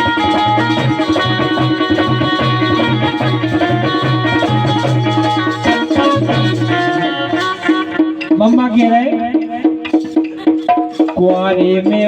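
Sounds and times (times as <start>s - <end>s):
sustained melody notes: 0.0s - 8.7s
drums steady rhythm: 0.0s - 12.0s.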